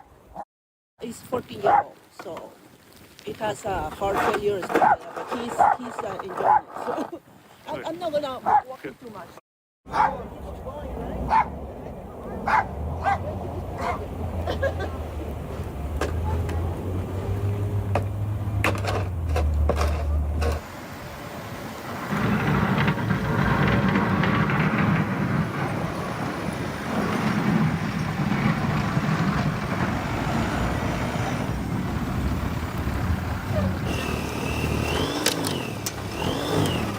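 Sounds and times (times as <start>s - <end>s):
road noise: 9.9s - 36.9s
low engine hum: 10.1s - 36.9s
vehicle engine running: 10.4s - 20.6s, 21.8s - 36.9s.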